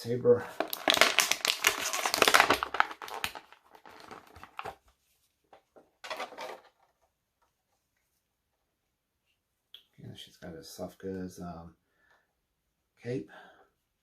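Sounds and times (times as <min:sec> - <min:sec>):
packaging crinkling: 0:00.5 - 0:04.9.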